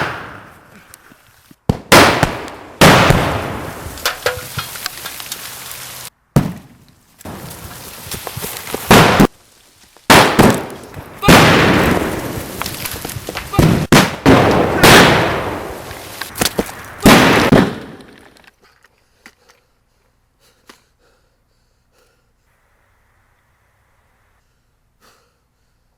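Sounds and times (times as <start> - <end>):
loud bangs with rumble: 10.1 - 12.5, 13.6 - 15.8, 17.0 - 18.0.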